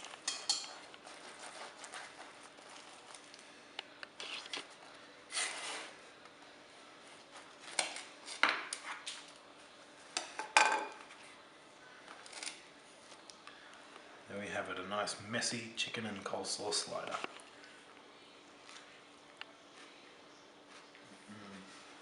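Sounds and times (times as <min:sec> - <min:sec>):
cutlery clinking against crockery: 0:00.0 - 0:00.9.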